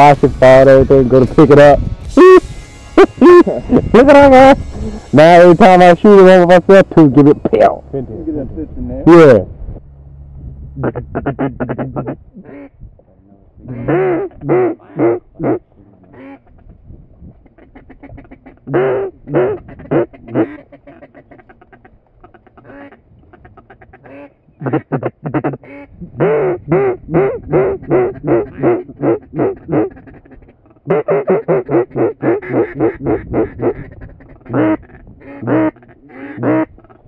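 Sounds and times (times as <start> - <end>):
duck quacking: 10.8 - 12.8, 13.6 - 16.8, 17.4 - 37.0.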